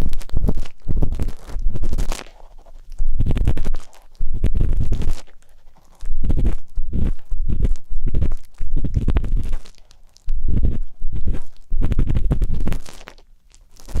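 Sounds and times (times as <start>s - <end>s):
deep rumble: 0.0s - 2.1s, 2.9s - 5.2s, 6.1s - 9.7s, 10.3s - 12.9s
ear pick scratching microphone: 0.0s - 14.0s.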